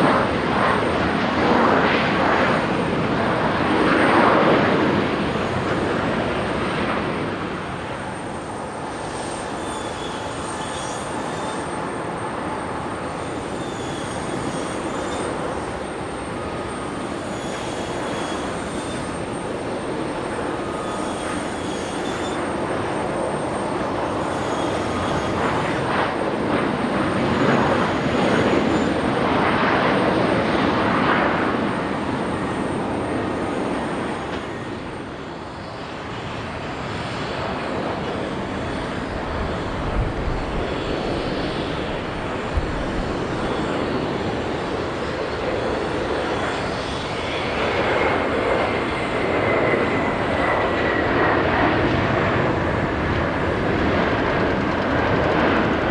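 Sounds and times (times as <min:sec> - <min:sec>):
jet airliner engines passing: 0:00.0 - 0:55.9
high whine falling in pitch: 0:41.4 - 0:44.6.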